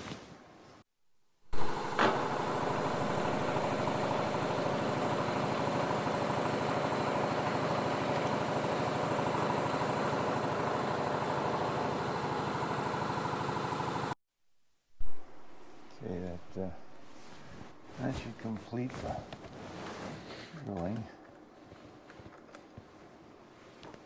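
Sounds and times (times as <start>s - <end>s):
drill motor humming: 1.6s - 13.8s.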